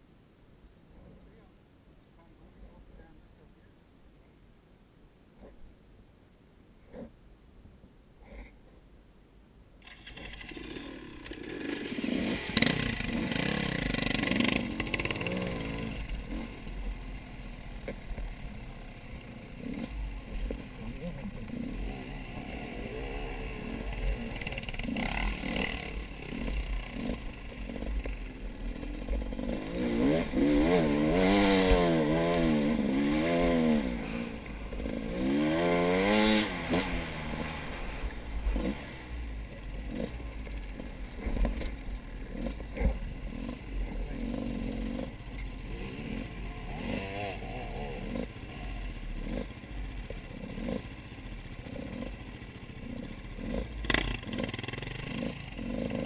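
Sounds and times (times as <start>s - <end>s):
vehicle engine revving: 9.9s - 56.0s
low rumble: 10.7s - 54.3s.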